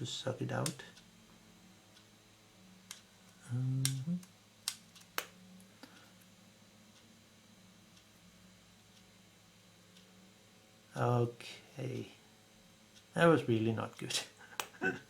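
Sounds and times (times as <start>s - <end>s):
person humming: 3.4s - 4.3s.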